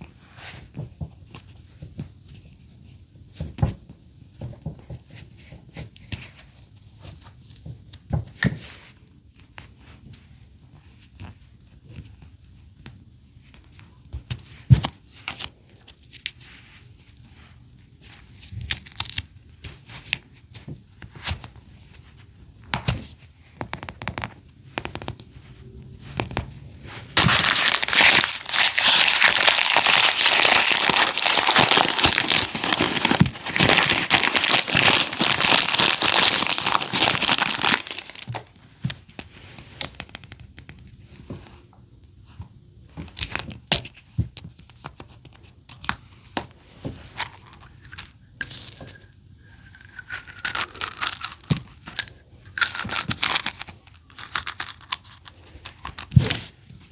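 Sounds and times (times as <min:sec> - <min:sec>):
plastic packaging crinkling and tearing: 0:27.2 - 0:38.5, 0:50.2 - 0:51.8, 0:52.6 - 0:56.4.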